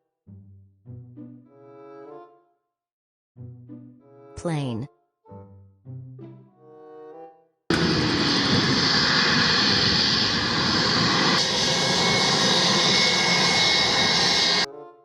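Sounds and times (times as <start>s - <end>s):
airplane engine noise: 7.7s - 14.7s.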